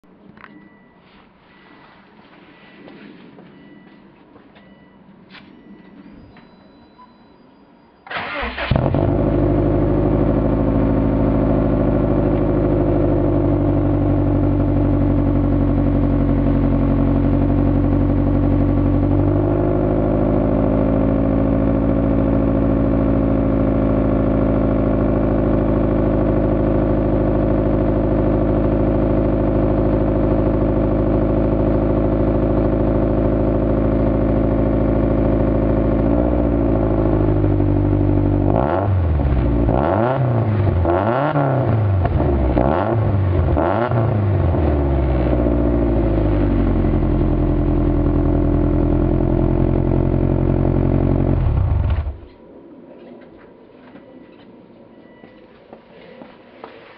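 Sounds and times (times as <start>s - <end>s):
car engine idling: 8.1s - 52.4s.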